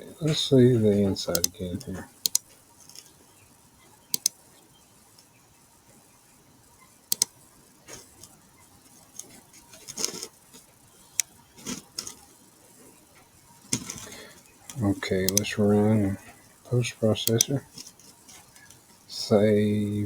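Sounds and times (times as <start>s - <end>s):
computer mouse clicking: 1.3s - 1.6s, 2.2s - 3.1s, 4.1s - 4.4s, 7.1s - 8.4s, 13.7s - 15.5s, 17.2s - 18.8s.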